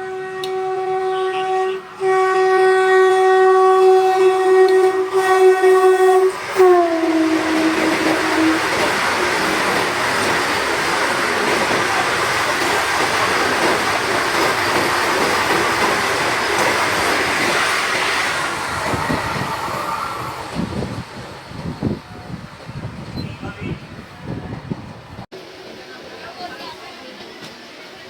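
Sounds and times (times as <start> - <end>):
train horn: 0.0 - 9.2
train rushing and rattling past: 0.0 - 28.0.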